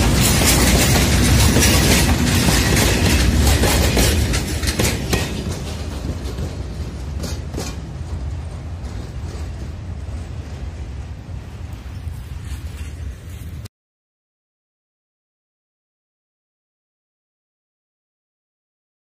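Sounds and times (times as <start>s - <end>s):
train wheels clicking over rail joints: 0.0s - 13.1s.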